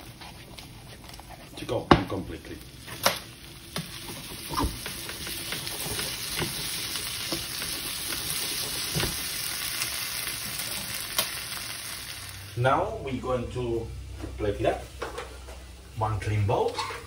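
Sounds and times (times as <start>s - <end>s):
potatoes sizzling in pan: 1.7s - 12.6s.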